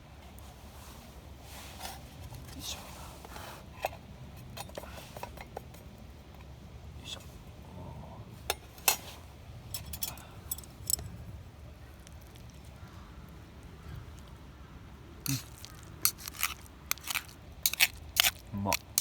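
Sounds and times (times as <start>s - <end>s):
utensils clinking on cookware: 9.7s - 11.0s.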